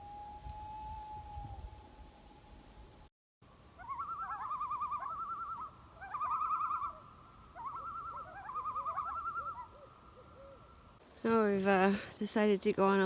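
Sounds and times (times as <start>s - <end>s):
loon tremolo calls: 3.8s - 10.8s.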